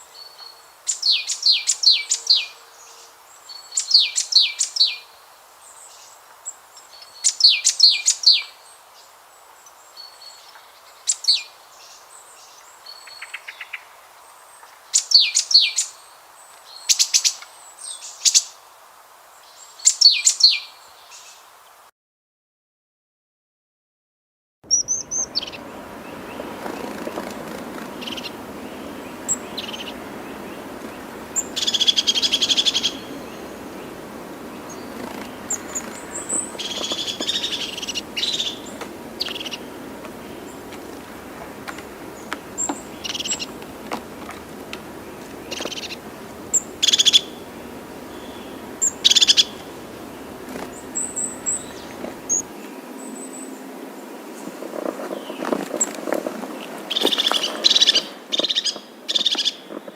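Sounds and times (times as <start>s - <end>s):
steady background hiss: 0.0s - 21.9s, 24.7s - 59.9s
birds chirping: 24.6s - 59.9s.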